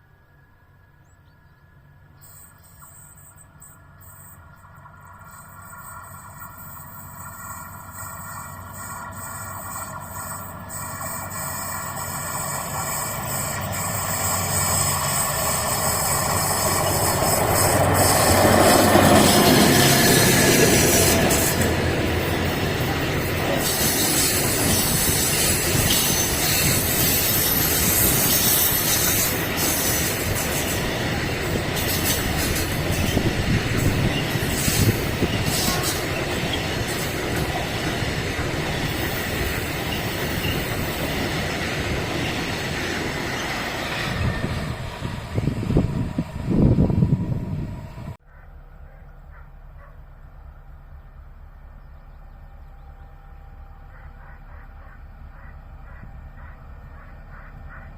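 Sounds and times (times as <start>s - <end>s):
train passing: 0.0s - 57.9s
wheel and rail noise: 0.0s - 57.9s
rail clacks: 4.6s - 48.2s.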